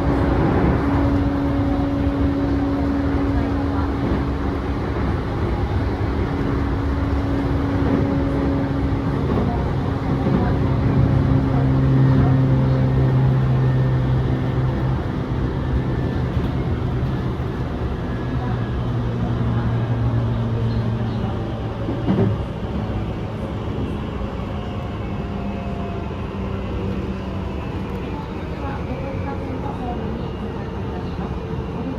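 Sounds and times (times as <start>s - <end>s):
train wheels rumbling on rail: 0.0s - 31.9s.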